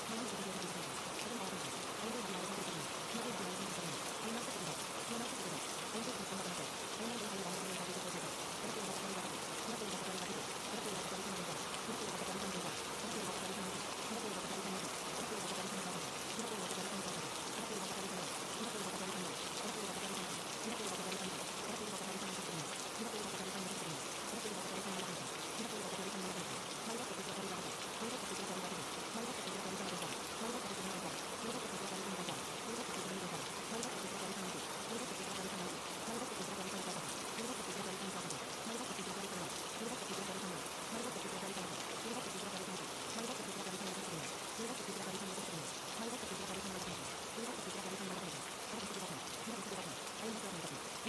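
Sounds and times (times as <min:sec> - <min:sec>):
steady rain: 0:00.0 - 0:51.0.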